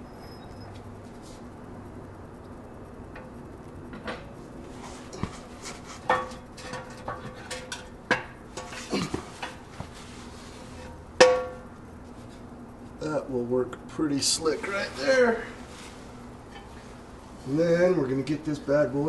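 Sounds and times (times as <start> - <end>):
metal pipes clanking together: 5.2 - 9.6, 11.2 - 11.7.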